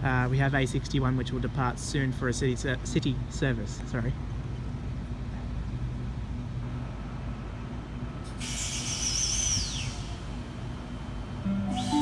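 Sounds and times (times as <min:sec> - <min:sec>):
electric trains rumbling: 0:00.0 - 0:12.0
high hiss: 0:11.5 - 0:12.0
thin whistling tone: 0:11.5 - 0:12.0.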